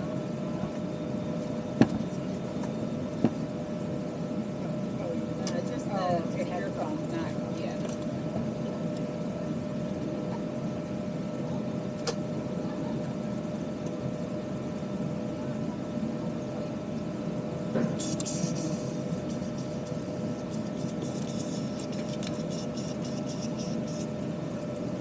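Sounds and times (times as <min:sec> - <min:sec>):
cabin ventilation hum: 0:00.0 - 0:25.0
faint passenger voices: 0:00.0 - 0:25.0.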